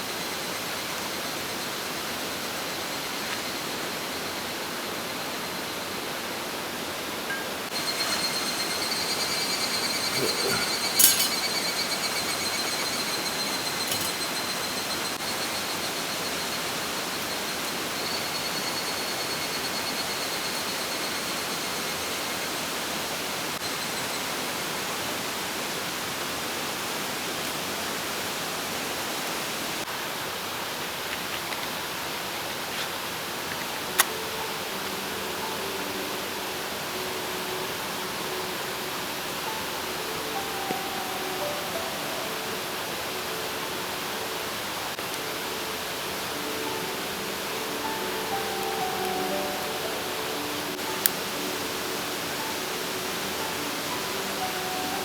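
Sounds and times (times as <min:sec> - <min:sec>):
stream flowing over rocks: 0:25.1 - 0:55.0.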